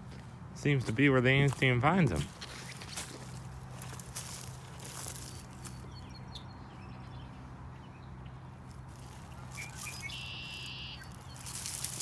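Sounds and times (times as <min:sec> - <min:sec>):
bird trill: 0:09.4 - 0:12.0
faint high bird chirps: 0:09.5 - 0:11.8.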